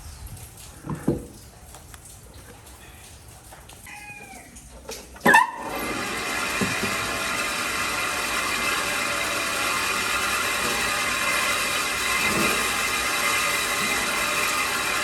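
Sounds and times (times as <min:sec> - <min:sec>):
power tool running: 0:05.6 - 0:15.0.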